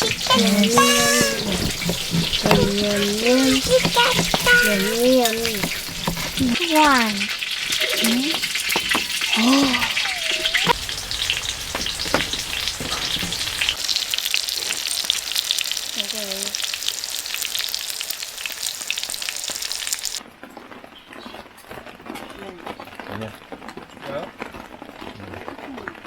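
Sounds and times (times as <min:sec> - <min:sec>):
cutlets frying in hot oil: 0:00.0 - 0:20.2.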